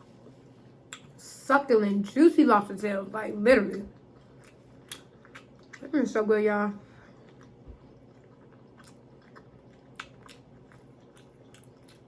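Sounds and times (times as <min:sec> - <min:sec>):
person chewing food: 0:00.0 - 0:01.2, 0:03.9 - 0:05.9, 0:06.9 - 0:12.0.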